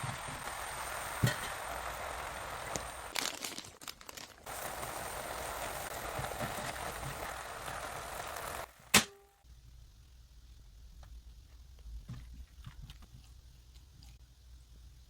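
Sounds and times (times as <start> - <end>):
mushrooms sizzling in frying pan: 0.0 - 8.9.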